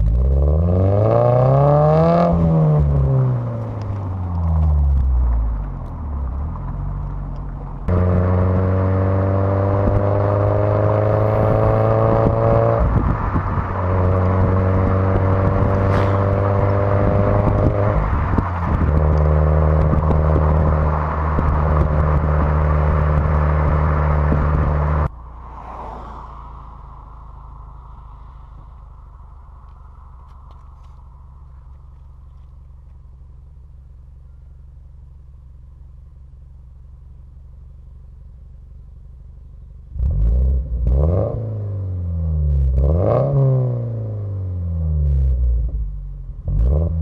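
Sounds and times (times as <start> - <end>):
car engine revving loudly: 7.9 - 26.0, 40.0 - 42.1.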